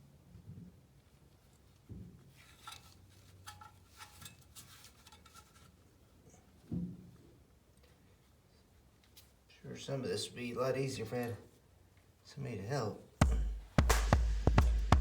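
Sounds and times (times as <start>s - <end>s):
metallic clicks and scrapes: 2.4s - 5.7s
dull thumps: 13.2s - 15.0s.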